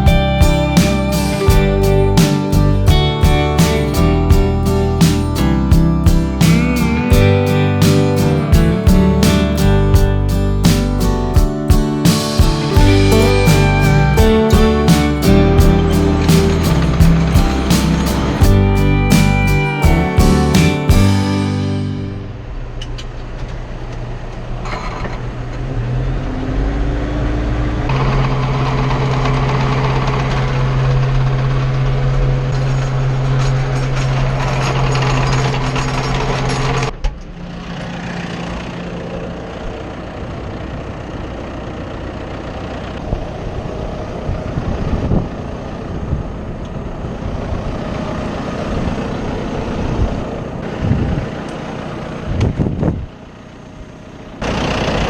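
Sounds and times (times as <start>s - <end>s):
tractor engine running: 0.0s - 22.4s.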